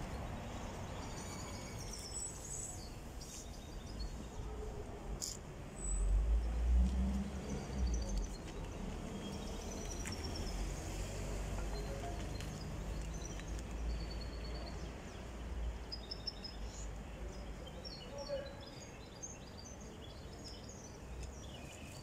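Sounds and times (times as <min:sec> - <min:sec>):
small birds chirping: 0:11.8 - 0:22.0.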